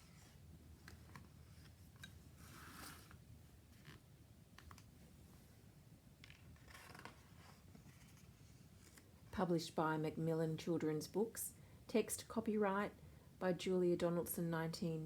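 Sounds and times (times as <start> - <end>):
soft rustles: 6.3 - 9.2.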